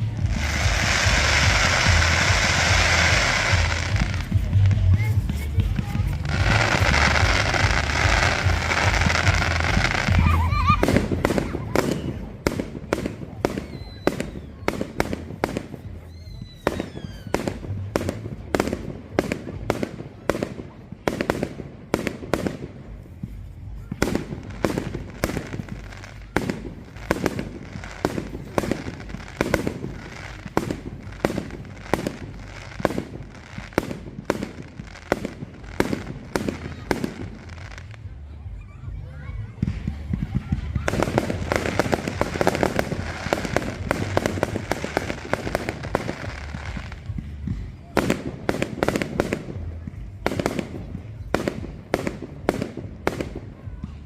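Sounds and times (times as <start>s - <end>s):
low rumble: 0.0s - 13.4s
fireworks banging: 0.0s - 54.0s.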